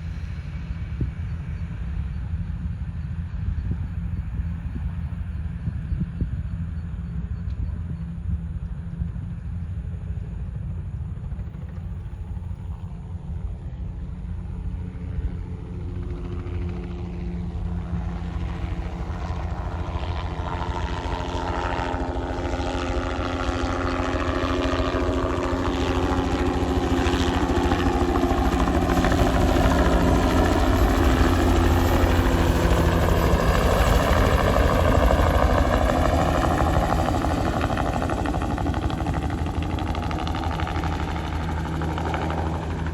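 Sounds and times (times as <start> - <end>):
helicopter flying past: 9.2 - 42.9.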